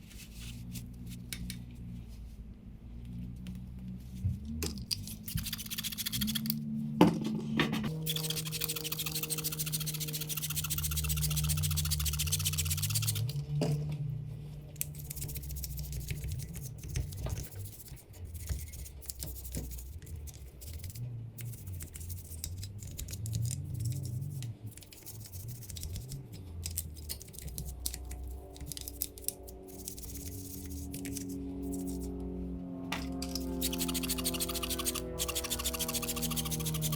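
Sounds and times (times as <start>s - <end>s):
scratchy scrubbing on metal: 7.9s - 13.3s, 14.9s - 26.3s, 26.9s - 32.1s, 33.2s - 36.9s.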